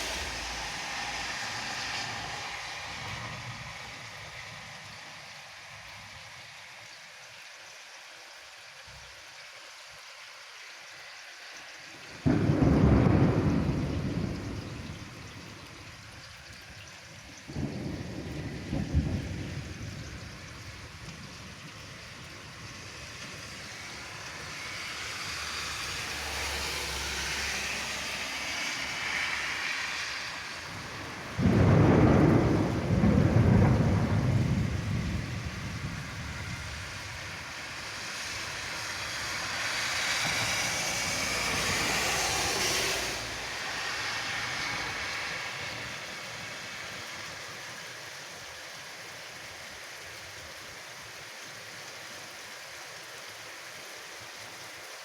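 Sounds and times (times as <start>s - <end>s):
thunder: 0.0s - 3.8s, 12.2s - 15.8s, 17.5s - 21.6s, 30.7s - 37.4s
steady rain: 0.0s - 55.0s.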